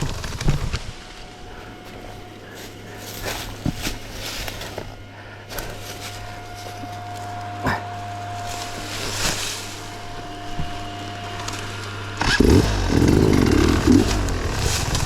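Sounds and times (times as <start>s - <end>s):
motorcycle engine running: 0.0s - 15.0s
engine knocks: 10.1s - 15.0s.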